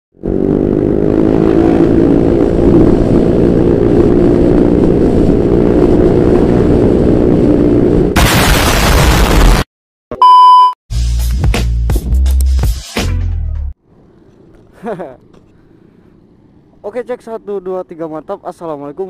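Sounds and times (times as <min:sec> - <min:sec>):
scooter engine droning: 0:00.2 - 0:08.2.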